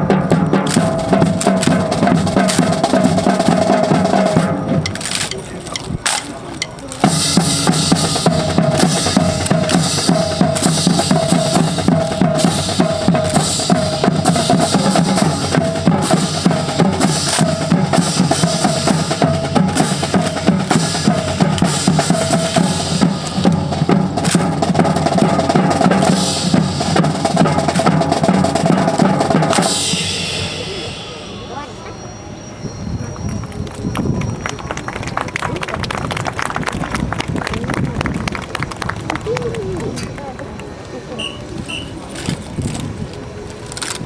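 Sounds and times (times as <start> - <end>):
bass drum and snare beat: 0.0 - 30.8.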